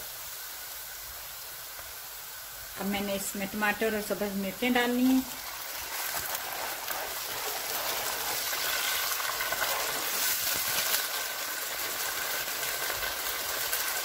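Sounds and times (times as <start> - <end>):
vegetables sizzling in hot oil: 0.0 - 14.0
spatula stirring in pan: 5.3 - 14.0.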